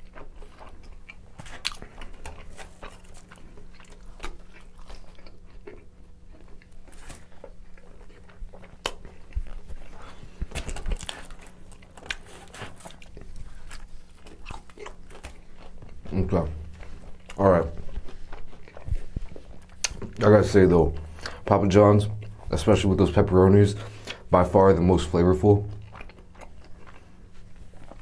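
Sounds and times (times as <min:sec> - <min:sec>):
chewing pizza: 0:00.0 - 0:28.0
wet mouth clicks and smacks: 0:19.6 - 0:20.1.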